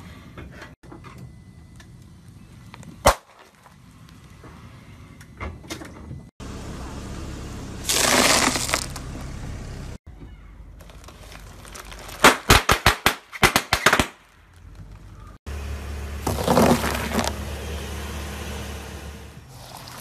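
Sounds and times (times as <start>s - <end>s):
low steady rumble: 0.8s - 10.0s
tyre crushing objects with cracks: 7.9s - 9.1s, 10.7s - 15.4s, 16.2s - 17.4s
tyre grinding block crunching: 7.9s - 9.2s, 10.8s - 12.6s, 16.2s - 17.4s.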